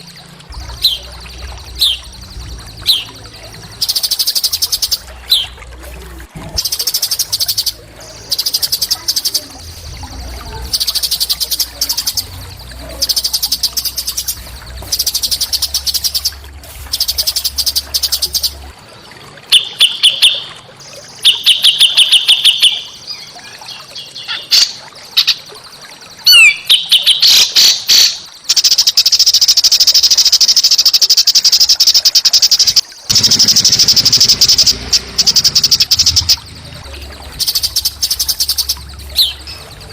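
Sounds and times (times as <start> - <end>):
songbird trilling: 0.0 - 5.6, 21.1 - 25.4, 26.3 - 29.0.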